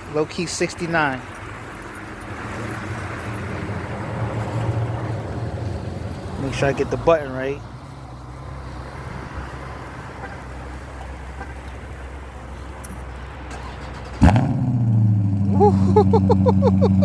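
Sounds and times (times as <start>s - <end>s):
car engine starting: 0.1s - 17.0s
deep engine idle: 14.1s - 17.0s.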